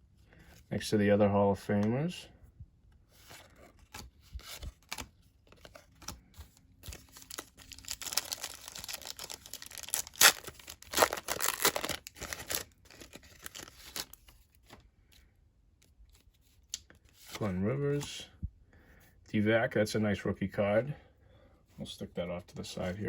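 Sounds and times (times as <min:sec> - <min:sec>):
wrapper tearing and crinkling: 0:06.8 - 0:14.3.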